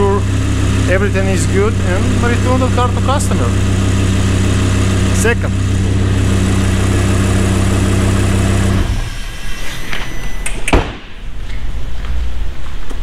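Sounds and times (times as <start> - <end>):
car engine idling: 0.0 - 10.6
shop noise: 0.0 - 13.0
sharp thump: 10.5 - 11.2.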